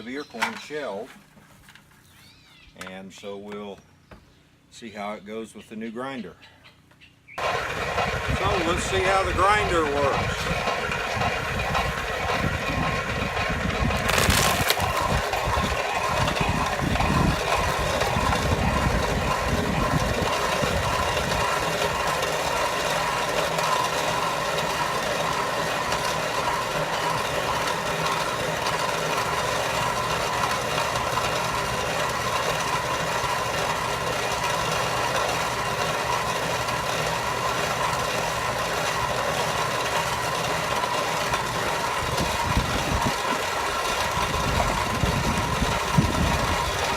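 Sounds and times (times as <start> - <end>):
feed grinder motor humming and whining: 7.4 - 46.9
heavy low rumble: 7.9 - 21.4.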